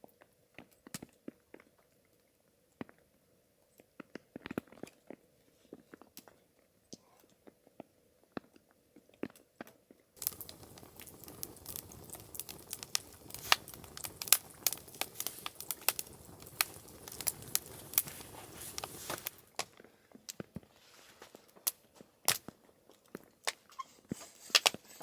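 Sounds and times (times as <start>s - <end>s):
steady hiss: 10.2s - 19.6s
campfire crackling and popping: 10.2s - 20.7s, 21.5s - 23.6s, 24.4s - 24.8s.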